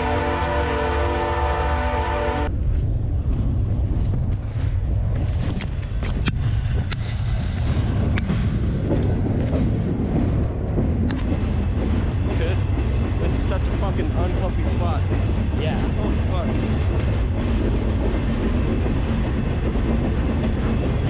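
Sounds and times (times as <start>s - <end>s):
locomotive air horn chord: 0.0s - 2.5s
freight train rumbling: 0.0s - 21.0s.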